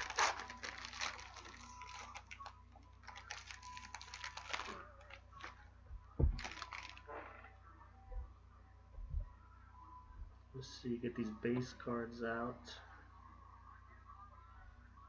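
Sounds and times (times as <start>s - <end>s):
card wrapper crinkling and clicks: 0.0s - 5.6s, 6.4s - 7.1s.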